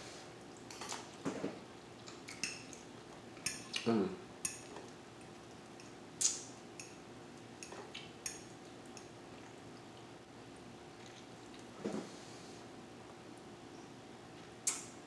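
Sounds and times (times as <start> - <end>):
utensils clinking on a plate: 4.4 - 4.9.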